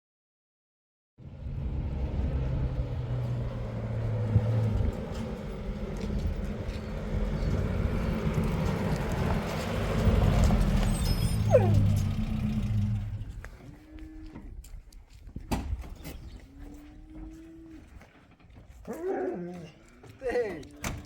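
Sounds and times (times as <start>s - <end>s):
car engine running: 1.2s - 13.5s.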